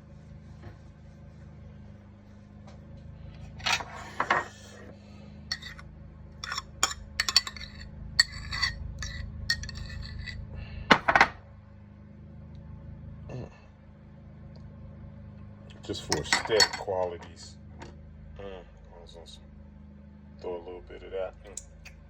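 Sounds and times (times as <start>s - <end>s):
low hum: 0.0s - 22.0s
metal utensils clinking on dishes: 5.5s - 5.8s, 6.4s - 10.4s, 16.0s - 16.9s.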